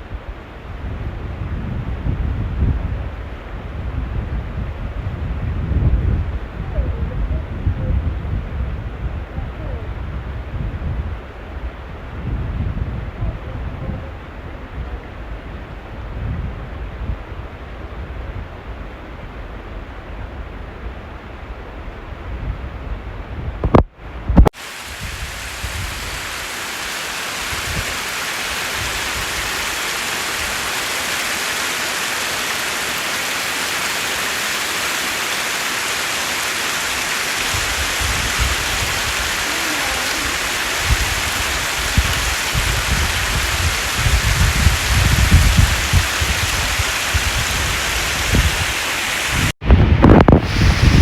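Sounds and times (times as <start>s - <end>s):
wind buffeting microphone: 0.0s - 26.5s, 27.3s - 30.8s, 36.8s - 51.0s
rushing falling water: 24.6s - 49.6s, 50.2s - 51.0s.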